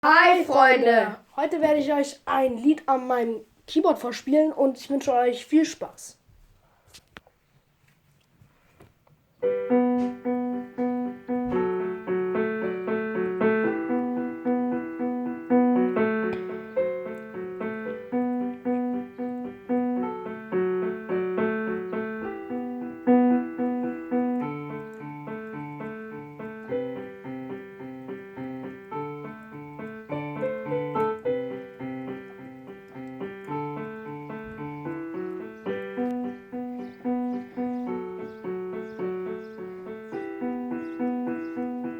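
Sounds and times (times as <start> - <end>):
electronic keyboard piano tune: 9.4 - 41.9.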